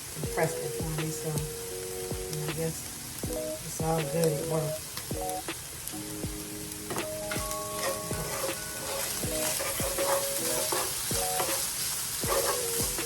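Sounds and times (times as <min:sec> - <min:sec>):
meat and onions sizzling in a pot: 0:00.0 - 0:13.0
spoon stirring and scraping: 0:06.9 - 0:13.0.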